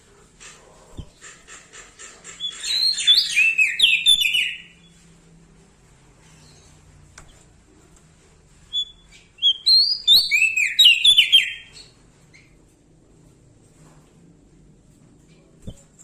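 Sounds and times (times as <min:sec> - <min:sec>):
bird singing high chirping notes: 0:08.7 - 0:11.9.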